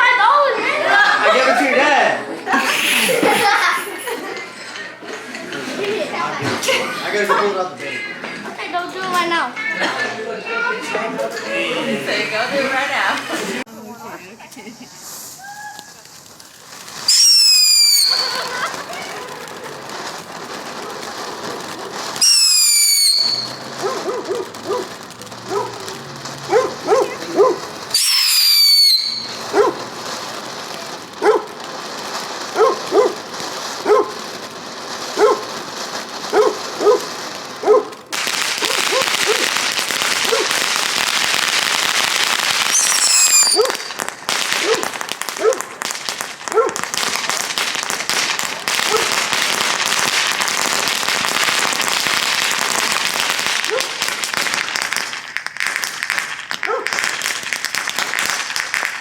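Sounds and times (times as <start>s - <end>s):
firecrackers crackling: 0.0s - 59.0s
whistling fireworks: 10.5s - 59.0s
dog barking: 23.7s - 27.7s, 29.5s - 29.8s, 31.2s - 31.5s, 32.5s - 33.2s, 33.8s - 34.2s, 35.2s - 35.5s, 36.2s - 38.0s, 38.6s - 39.5s, 40.2s - 40.6s, 44.6s - 45.7s, 46.5s - 46.8s, 48.8s - 49.2s, 53.7s - 54.0s, 56.6s - 57.0s.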